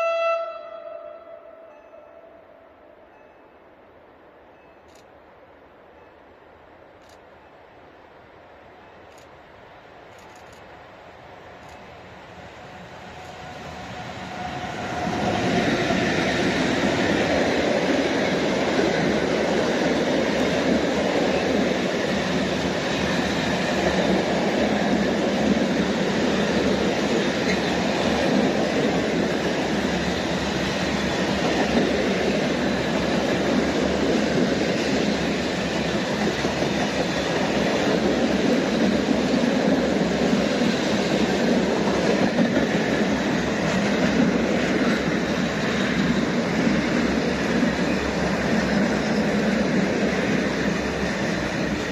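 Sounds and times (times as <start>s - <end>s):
train wheels rumbling on rails: 9.0s - 51.9s.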